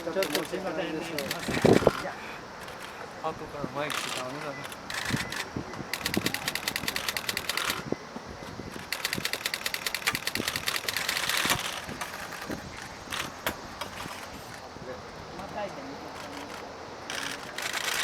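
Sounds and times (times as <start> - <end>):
camera shutter bursts: 3.9 - 7.9, 8.9 - 11.9.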